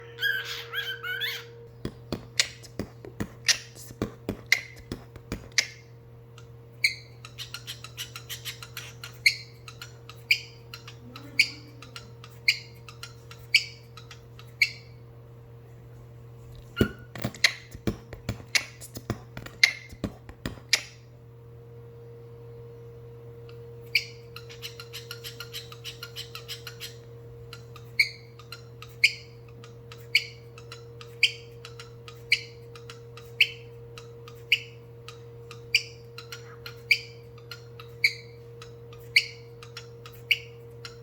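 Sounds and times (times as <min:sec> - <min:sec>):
cockatiel chirps: 0:00.0 - 0:01.5, 0:06.8 - 0:15.0, 0:23.8 - 0:38.4, 0:39.0 - 0:41.0
low electrical hum: 0:00.0 - 0:41.0.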